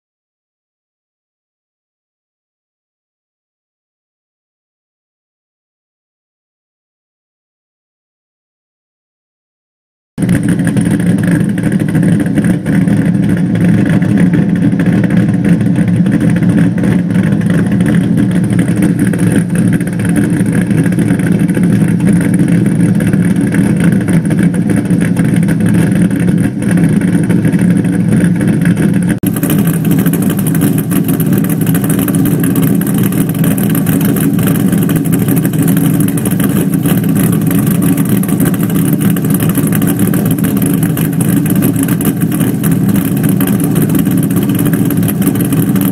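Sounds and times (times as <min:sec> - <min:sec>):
engine exhaust rumble: 0:10.2 - 0:45.9.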